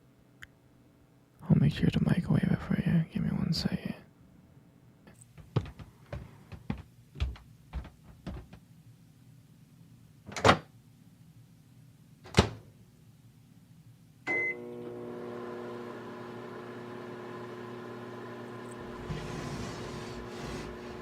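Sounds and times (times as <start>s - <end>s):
microwave oven humming: 14.2s - 21.0s.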